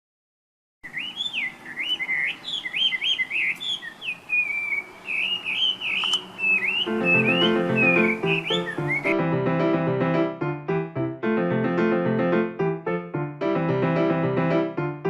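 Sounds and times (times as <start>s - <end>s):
bird singing whistled phrases: 0.8s - 9.2s.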